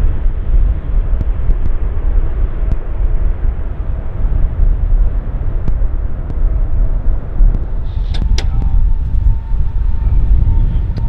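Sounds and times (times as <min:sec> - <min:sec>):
faint steady whine: 0:00.0 - 0:11.0
jet engines rumbling: 0:00.0 - 0:11.0.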